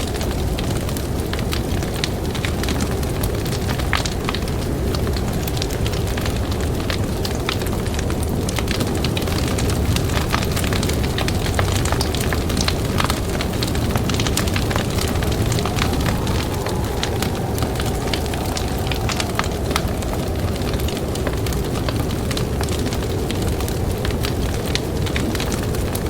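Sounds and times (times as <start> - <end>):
faint wind howl: 0.0 - 26.0
campfire crackling and popping: 8.3 - 26.0
wind rushing: 11.1 - 24.0.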